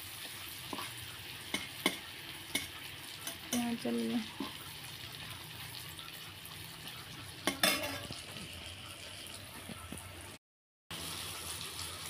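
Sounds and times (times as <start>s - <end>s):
masala sizzling in oil: 0.0s - 12.0s
spoon clinking against pot: 0.7s - 3.8s, 7.4s - 8.2s.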